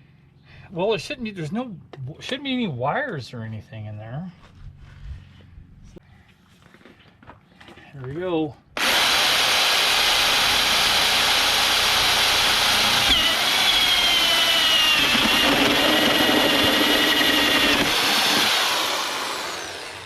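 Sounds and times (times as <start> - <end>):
power tool cutting metal panel: 8.8 - 20.0.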